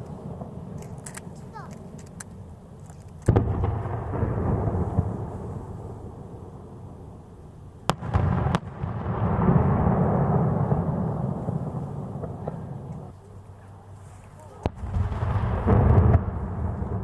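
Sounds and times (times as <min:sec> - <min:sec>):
fireworks shells bursting: 0:00.0 - 0:06.0
rolling rumble: 0:07.9 - 0:17.0.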